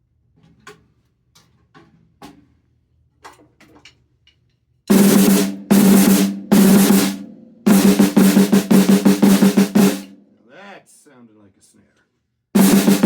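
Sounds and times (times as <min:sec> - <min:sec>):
snare drum rolls and strokes: 0:04.9 - 0:10.2, 0:12.6 - 0:13.0.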